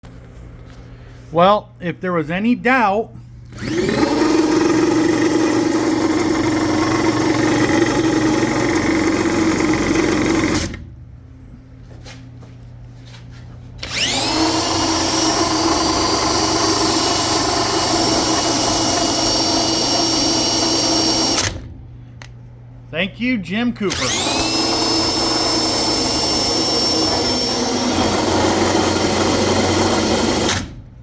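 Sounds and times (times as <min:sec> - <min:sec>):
power tool whining: 0:03.5 - 0:10.9, 0:13.8 - 0:21.8, 0:23.8 - 0:30.9.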